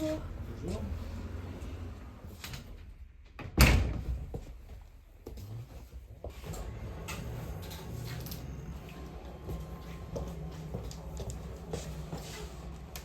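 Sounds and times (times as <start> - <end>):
door shutting with a bang: 3.4 - 4.3.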